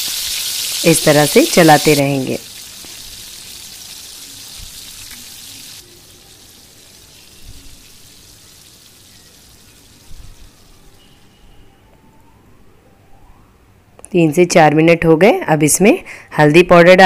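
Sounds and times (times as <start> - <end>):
paste sizzling in oil: 0.0 - 10.1.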